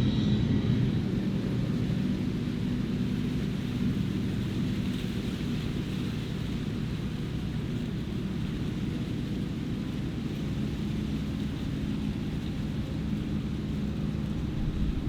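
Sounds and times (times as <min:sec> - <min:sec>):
large diesel engine droning: 0:00.0 - 0:05.1.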